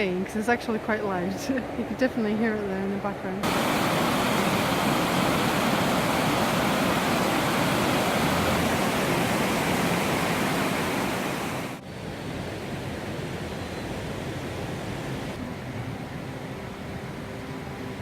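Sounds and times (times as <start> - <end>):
waterfall rushing: 3.4 - 15.4.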